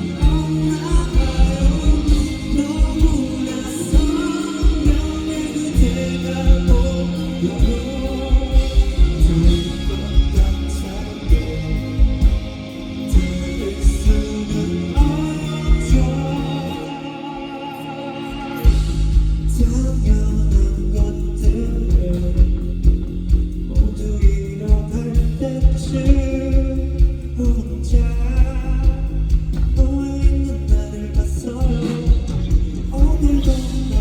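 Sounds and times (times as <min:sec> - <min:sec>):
rock band with singing: 0:00.0 - 0:34.0
drum beat: 0:00.1 - 0:16.4, 0:18.7 - 0:34.0.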